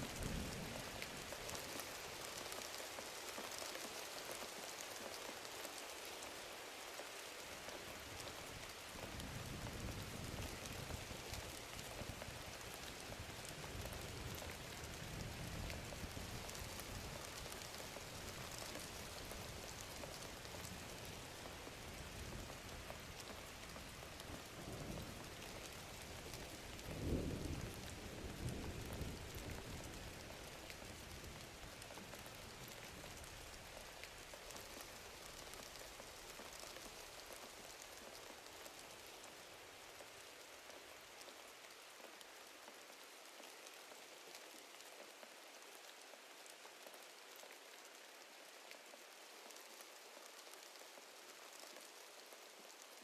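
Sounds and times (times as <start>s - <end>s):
steady rain: 0.0s - 53.0s
low rolls of thunder: 24.4s - 31.4s.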